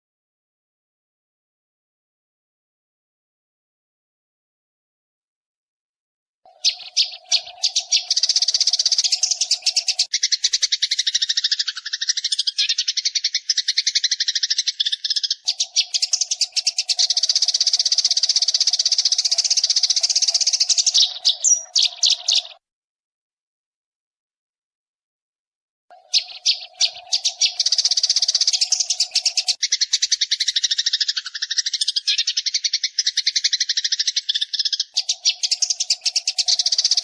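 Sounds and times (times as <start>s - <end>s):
sparrows chirping rapidly: 6.5s - 22.6s, 25.9s - 37.0s.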